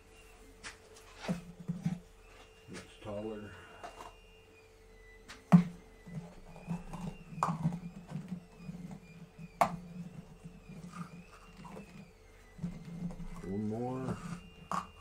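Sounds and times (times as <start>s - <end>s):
plastic cups knocking: 5.5s - 12.0s, 14.1s - 15.0s.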